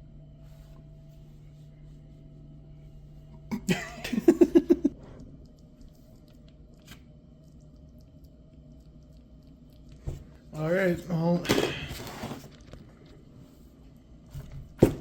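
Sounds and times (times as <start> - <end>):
faint room hum: 0.0 - 15.0
person laughing: 3.5 - 5.0.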